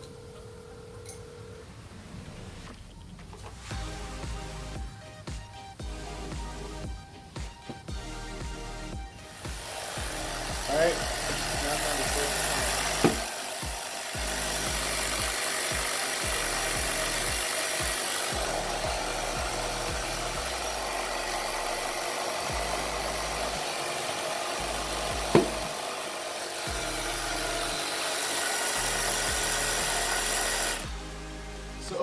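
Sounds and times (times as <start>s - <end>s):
air compressor running: 5.8s - 31.3s
tire bead popping: 9.4s - 18.5s, 24.6s - 25.8s.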